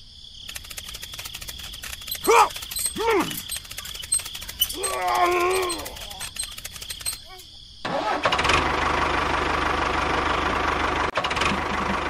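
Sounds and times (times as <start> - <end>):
fast clicking rattle: 0.4 - 7.4
groaning voice-like moan: 2.2 - 3.4, 4.7 - 6.2.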